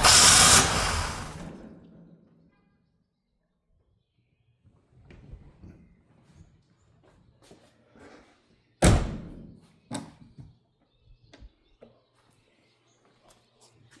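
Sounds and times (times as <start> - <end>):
loud bang: 0.0 - 1.6.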